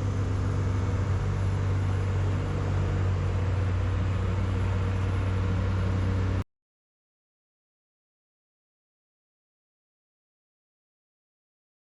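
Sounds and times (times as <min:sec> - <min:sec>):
boat engine humming: 0:00.0 - 0:06.4.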